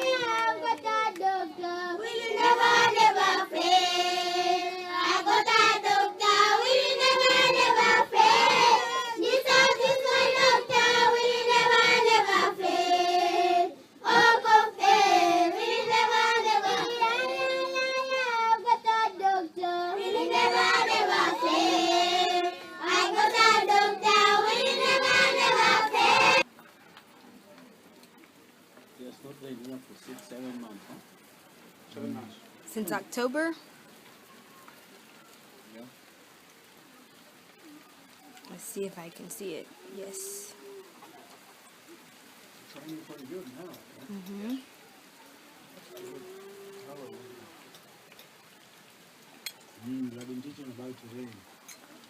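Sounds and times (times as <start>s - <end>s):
children singing: 0.0s - 26.4s.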